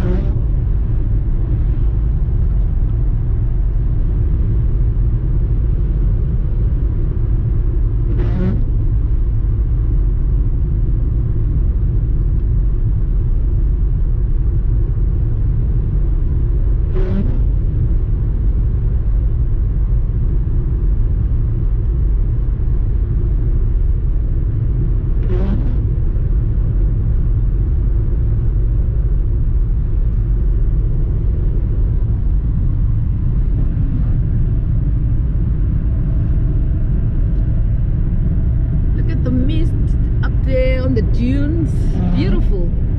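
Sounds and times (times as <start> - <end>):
windscreen wiper sweep: 0.0 - 9.6, 25.1 - 26.6
road and engine rumble: 0.0 - 42.9.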